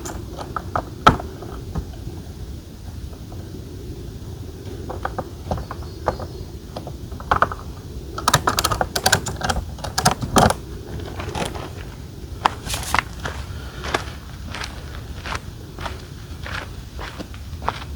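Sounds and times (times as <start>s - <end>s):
low outdoor rumble: 0.0s - 17.9s
clicks and knocks of hard parts: 8.2s - 10.6s.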